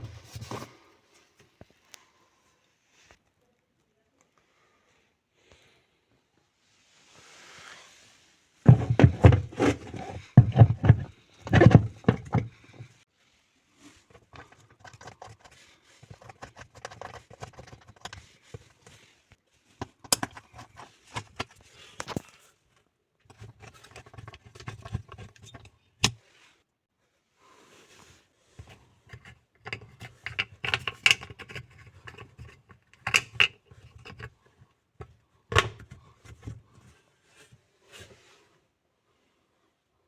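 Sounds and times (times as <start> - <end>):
hard objects clattering: 8.7 - 12.9, 29.1 - 34.3.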